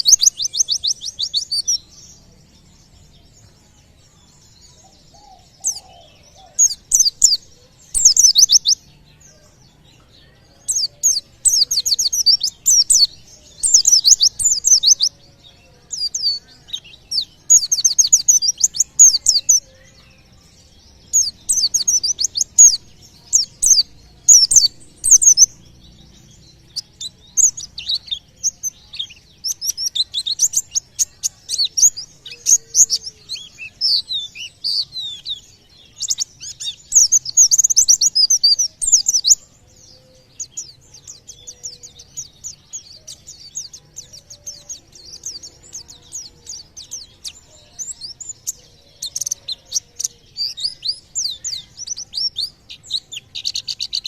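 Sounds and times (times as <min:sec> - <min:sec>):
bird singing high trills: 0:00.0 - 0:54.0.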